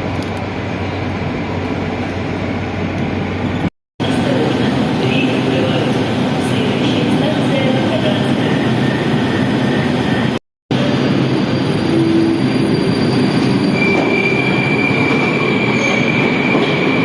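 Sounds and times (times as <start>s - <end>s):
train wheels rumbling on rails: 0.0s - 17.0s
high wheel squeal: 11.2s - 17.0s.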